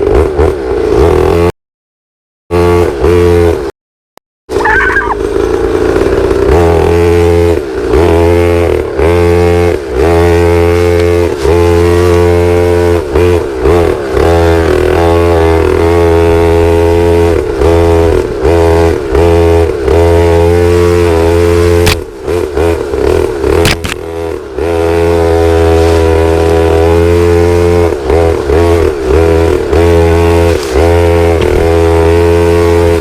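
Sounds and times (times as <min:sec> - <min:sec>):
pit bike engine running: 0:04.5 - 0:33.0.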